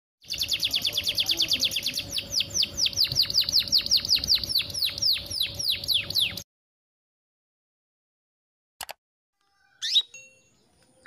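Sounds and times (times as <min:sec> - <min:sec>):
canary calling: 0:00.2 - 0:06.4, 0:09.4 - 0:11.0.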